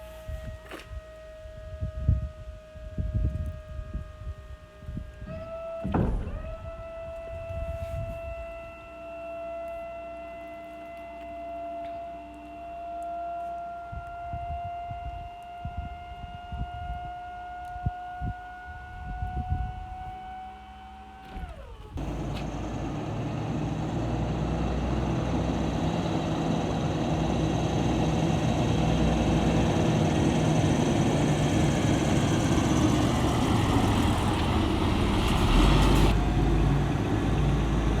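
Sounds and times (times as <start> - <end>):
truck diesel engine running: 22.0 - 38.0.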